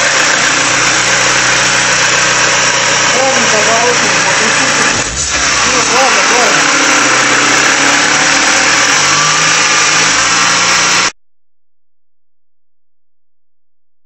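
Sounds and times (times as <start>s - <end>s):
car engine running: 0.0s - 11.1s.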